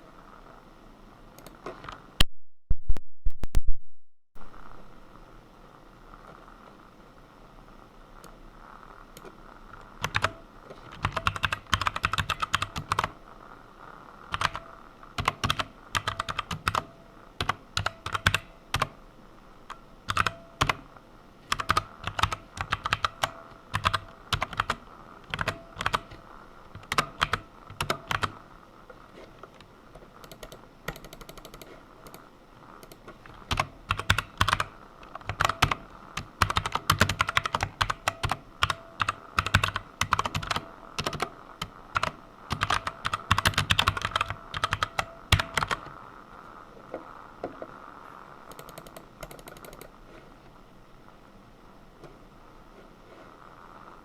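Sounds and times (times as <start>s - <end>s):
typing on computer keyboard: 10.0s - 13.2s, 14.3s - 19.0s, 19.7s - 20.9s, 21.5s - 28.4s, 30.2s - 32.2s, 32.8s - 45.9s, 48.5s - 49.9s.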